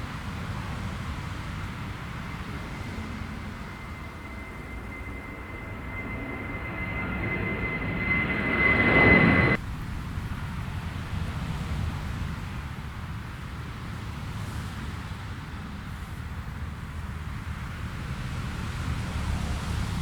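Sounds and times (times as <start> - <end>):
jet airliner passing: 1.7 - 9.6.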